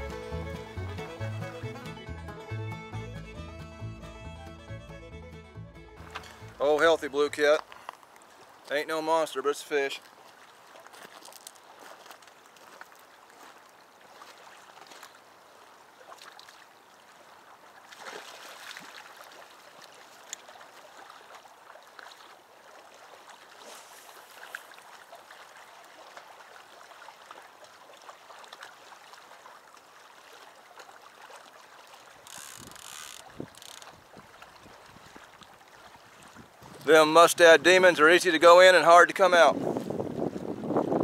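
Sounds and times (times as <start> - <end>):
small waves lapping on rocks: 6.0 - 41.0
wind buffeting microphone: 36.3 - 36.9, 39.4 - 41.0.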